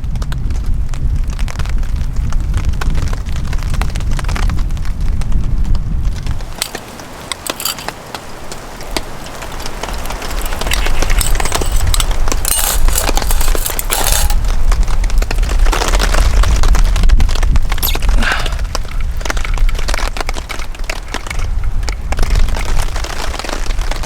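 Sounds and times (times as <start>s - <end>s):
wind buffeting microphone: 0.0s - 24.0s
sharp cracks and pops: 6.2s - 24.0s.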